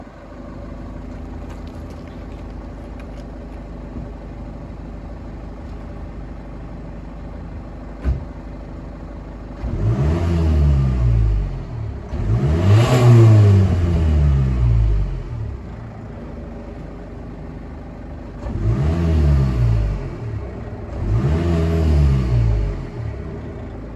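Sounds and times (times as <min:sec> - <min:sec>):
diesel car engine idling: 0:00.0 - 0:23.9
short thump: 0:08.0 - 0:08.4
engine revving: 0:09.5 - 0:15.6, 0:18.2 - 0:23.9.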